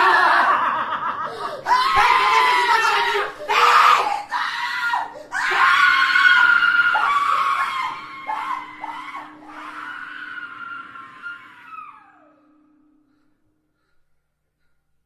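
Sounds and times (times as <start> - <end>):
person screaming: 1.7 - 12.3.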